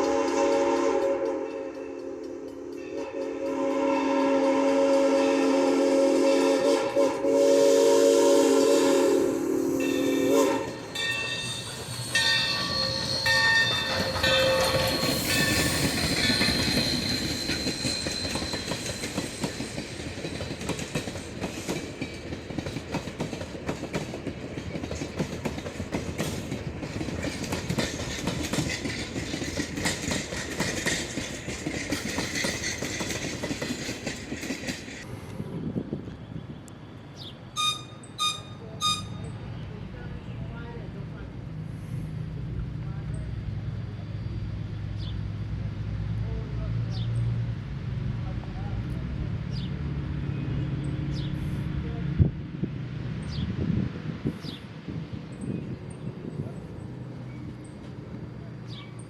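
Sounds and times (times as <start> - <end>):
steam locomotive whistle: 0.0 - 19.5, 37.6 - 39.3
train clattering by: 0.0 - 59.0
short high tones: 37.6 - 39.4.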